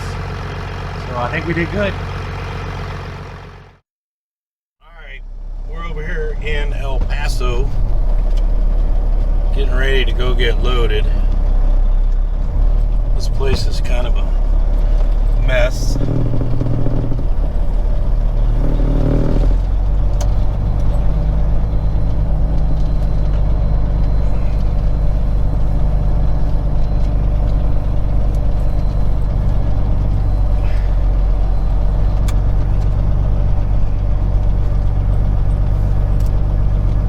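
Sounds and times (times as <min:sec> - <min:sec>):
truck diesel engine drone: 0:00.0 - 0:03.8, 0:04.8 - 0:37.0.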